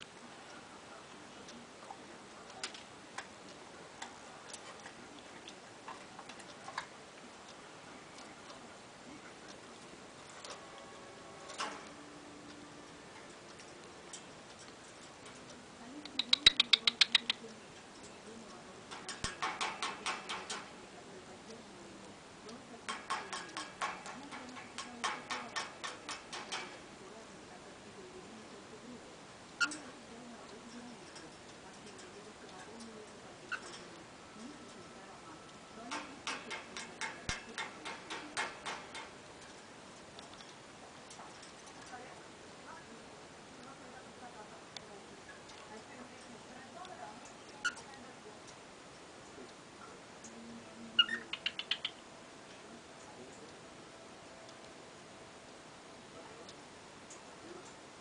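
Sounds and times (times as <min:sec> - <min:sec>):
faint steady hiss: 0:00.0 - 0:58.0
bird beak knocking: 0:16.1 - 0:17.4, 0:18.9 - 0:20.7, 0:22.9 - 0:26.8, 0:35.9 - 0:39.2.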